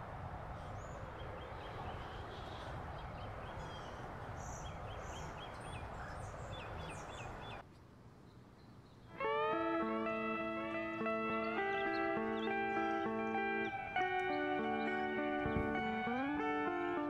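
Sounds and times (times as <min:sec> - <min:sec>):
small birds chirping: 0:00.6 - 0:17.0
guitar music with sliding notes: 0:09.1 - 0:17.0.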